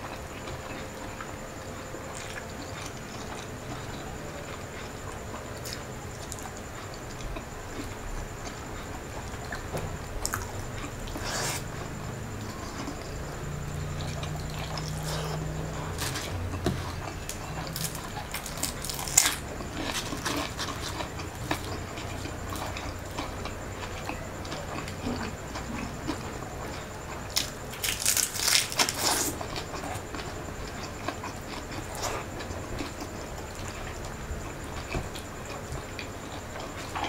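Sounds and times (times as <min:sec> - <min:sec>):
person chewing with wet mouth sounds: 0:00.0 - 0:37.0
crunchy bites: 0:09.4 - 0:37.0.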